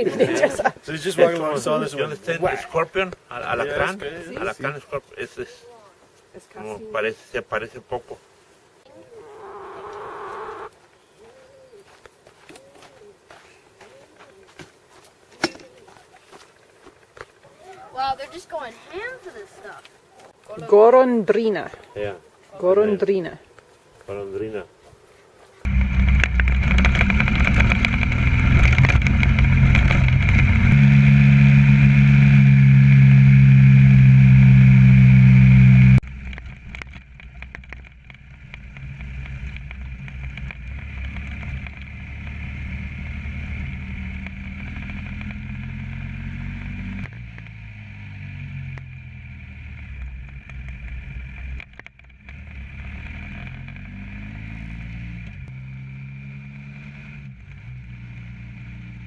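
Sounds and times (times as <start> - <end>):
motorcycle engine: 8.9 - 10.7, 25.7 - 59.0.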